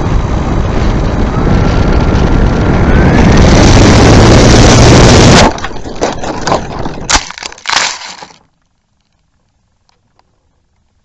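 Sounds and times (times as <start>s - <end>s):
rush of wind: 0.0s - 7.1s
crunching and cracking knocks: 5.4s - 8.5s.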